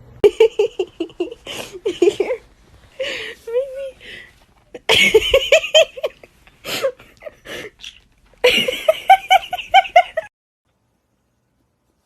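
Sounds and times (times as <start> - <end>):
person laughing: 0.2 - 2.4, 4.8 - 10.3.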